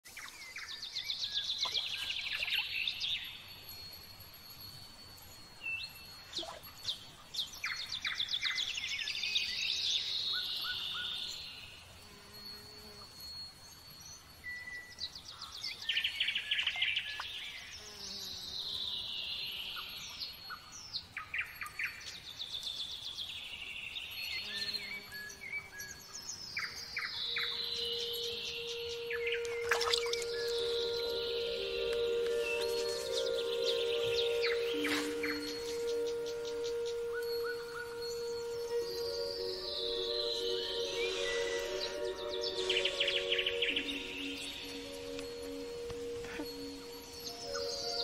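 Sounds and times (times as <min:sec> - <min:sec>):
songbird singing: 0:00.0 - 0:48.0
thin steady high tone: 0:26.6 - 0:48.0.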